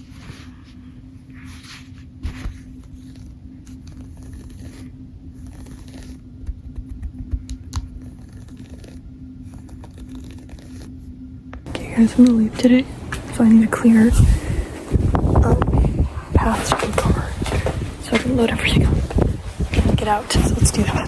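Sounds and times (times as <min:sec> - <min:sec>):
steady low hum: 0:00.0 - 0:21.0
rustling scraping handling noise: 0:11.7 - 0:21.0.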